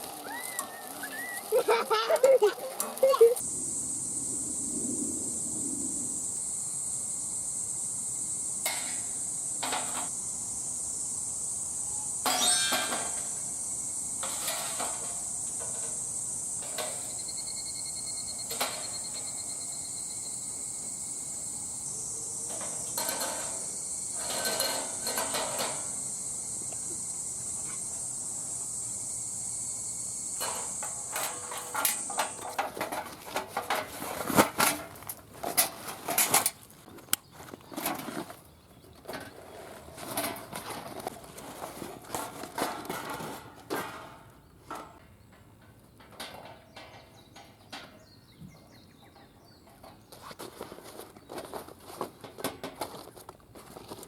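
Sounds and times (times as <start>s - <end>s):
crickets chirring: 0.0s - 42.3s.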